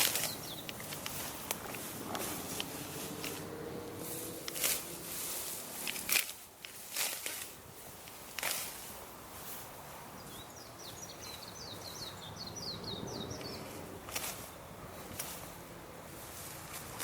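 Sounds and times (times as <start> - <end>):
bird chirping song: 0.0 - 1.2, 10.1 - 15.1
rustles in dry grass: 0.0 - 12.2, 13.1 - 17.0
low outdoor hum: 0.0 - 17.0.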